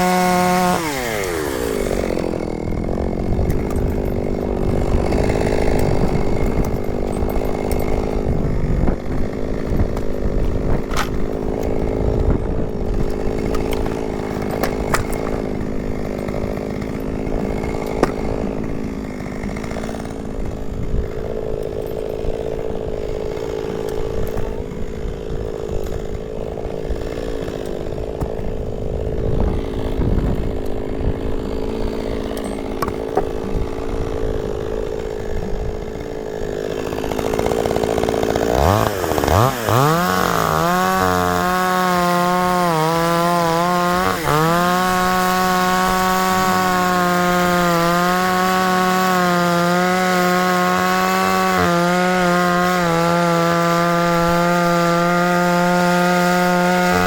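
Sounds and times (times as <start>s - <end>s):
chainsaw cutting logs: 0.0s - 57.0s.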